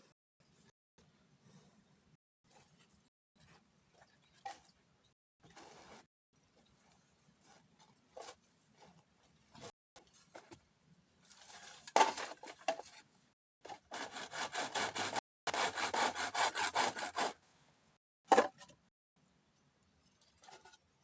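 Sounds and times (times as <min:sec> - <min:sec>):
saw cutting through bamboo: 0:13.6 - 0:17.4.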